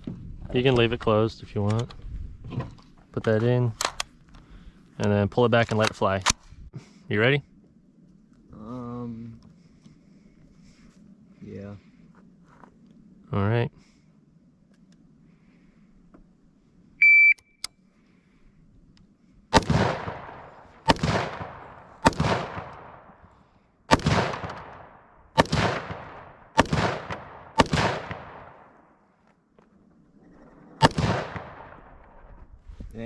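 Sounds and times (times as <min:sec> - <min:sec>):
shot timer beep: 0:17.0 - 0:17.6
gunshots with echo: 0:19.5 - 0:23.3, 0:23.9 - 0:28.8, 0:30.8 - 0:32.0.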